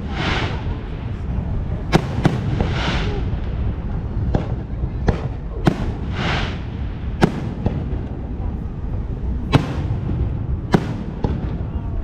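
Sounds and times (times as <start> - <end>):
hissing crackle: 0.0 - 4.2, 5.5 - 8.2
fireworks bangs: 0.0 - 12.0
low rumble: 0.0 - 12.0.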